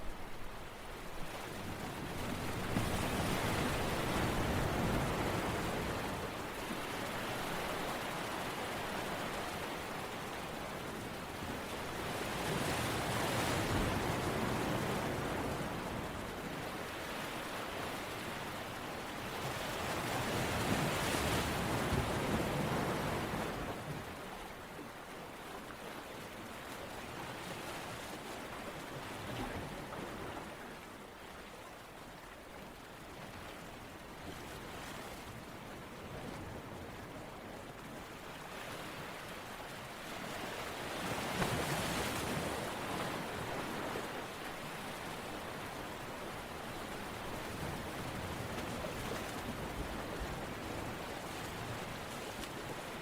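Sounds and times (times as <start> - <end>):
waves washing in: 33.7 - 53.0.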